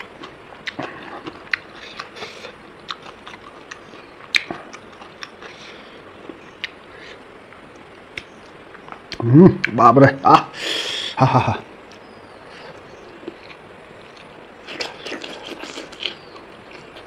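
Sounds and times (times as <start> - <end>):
person chewing food: 0.0 - 9.2, 12.6 - 17.0
wet mouth clicks: 0.6 - 5.6.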